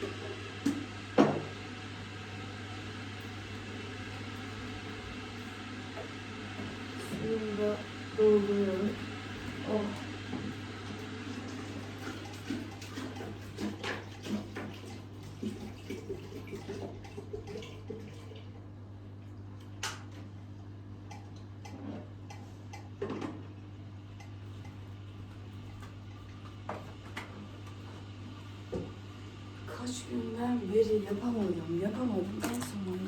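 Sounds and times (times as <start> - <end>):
water pouring into tea maker: 2.8 - 18.5.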